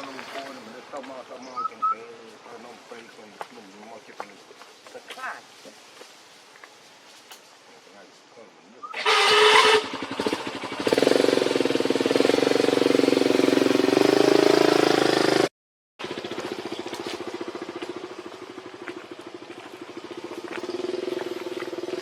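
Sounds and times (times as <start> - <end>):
small motorcycle engine running: 9.0 - 22.0.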